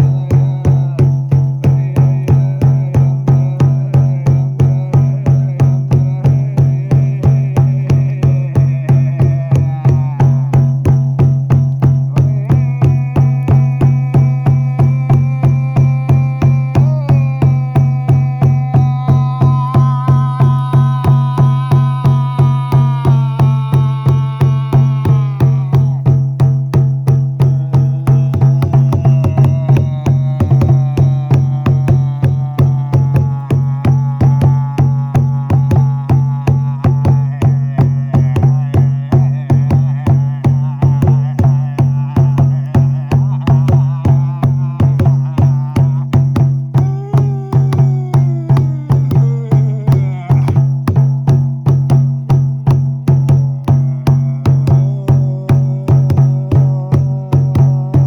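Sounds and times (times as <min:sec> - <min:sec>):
frame drum beating: 0:00.0 - 0:58.0
low drone: 0:12.3 - 0:26.0.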